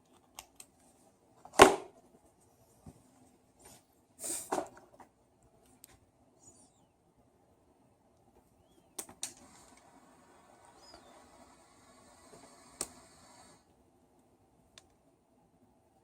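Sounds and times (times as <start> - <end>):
soft rustling hiss: 0.0 - 7.1.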